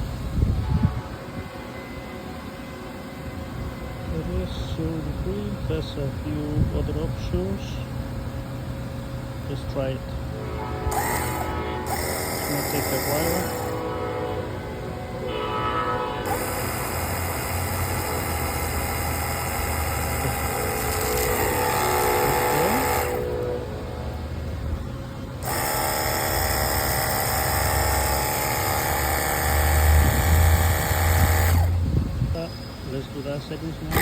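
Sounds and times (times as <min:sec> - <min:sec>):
pressure washer motor whine: 0:10.4 - 0:14.2, 0:16.2 - 0:32.9.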